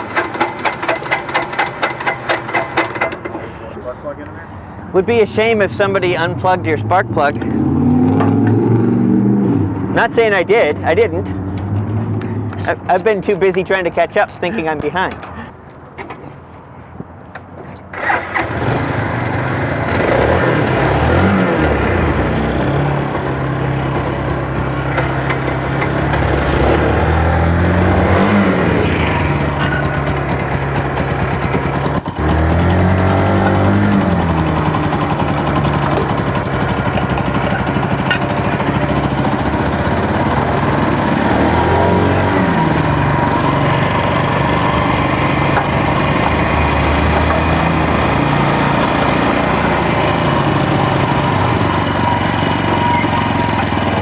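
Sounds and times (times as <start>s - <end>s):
small motorcycle engine revving: 7.4s - 9.8s, 17.9s - 54.0s.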